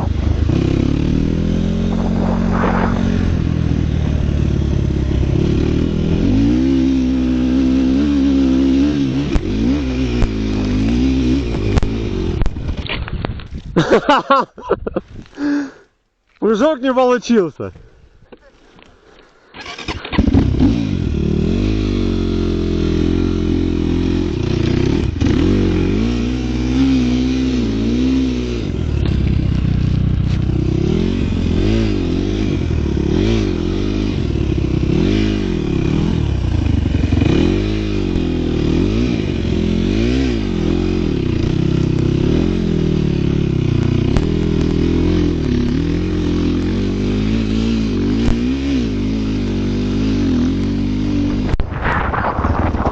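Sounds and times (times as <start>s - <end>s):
small engine revving: 0.0s - 12.6s, 19.5s - 52.9s.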